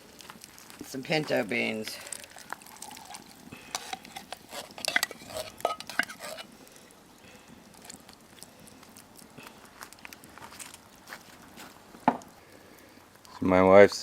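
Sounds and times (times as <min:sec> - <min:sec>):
metal spoon scraping cookware: 0:03.6 - 0:06.5.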